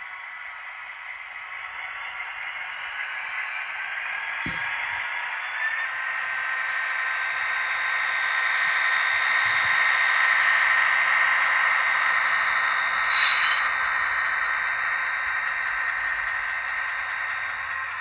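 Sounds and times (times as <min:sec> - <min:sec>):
model locomotive diesel sound: 0:00.0 - 0:18.0
burst of hiss: 0:13.1 - 0:13.9.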